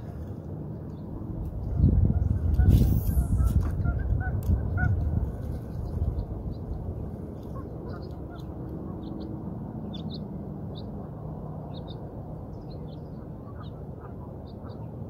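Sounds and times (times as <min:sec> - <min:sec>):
low outdoor rumble: 0:00.0 - 0:15.0
small birds chirping: 0:05.6 - 0:10.9, 0:11.6 - 0:13.8.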